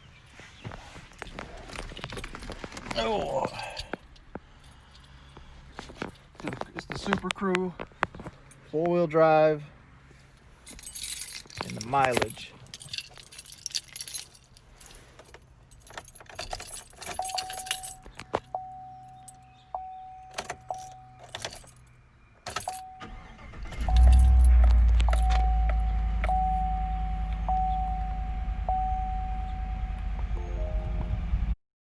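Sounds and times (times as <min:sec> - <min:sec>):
keys jangling: 0:01.0 - 0:05.2, 0:10.6 - 0:19.6, 0:20.2 - 0:26.6
warning chime tone: 0:17.2 - 0:21.3, 0:22.7 - 0:31.6
truck engine starting and idling: 0:22.6 - 0:31.6.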